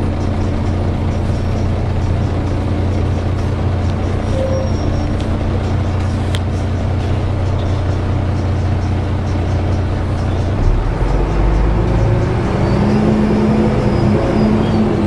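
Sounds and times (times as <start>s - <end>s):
bus diesel engine droning: 0.0s - 15.0s.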